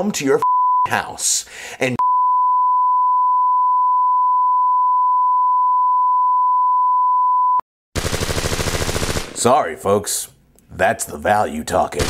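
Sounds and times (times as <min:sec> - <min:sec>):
censor bleep tone: 0:00.4 - 0:00.9, 0:02.0 - 0:07.6
machine-gun fire: 0:08.0 - 0:09.6.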